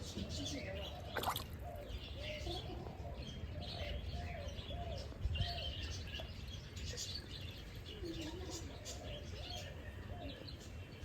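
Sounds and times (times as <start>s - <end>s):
high bird chirps: 1.0s - 2.0s.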